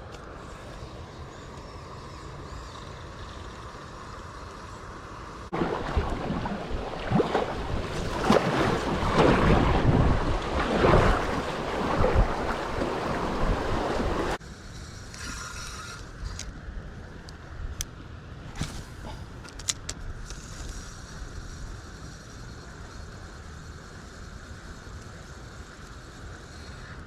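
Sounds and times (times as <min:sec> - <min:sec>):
creek water splashing: 0:05.5 - 0:14.4
wind buffeting microphone: 0:05.5 - 0:14.4.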